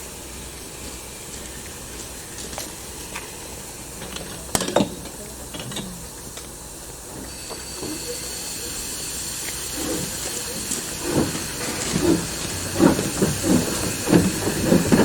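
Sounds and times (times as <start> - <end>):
steam locomotive hissing: 0.0 - 15.0
high-pitched hiss: 7.2 - 14.9.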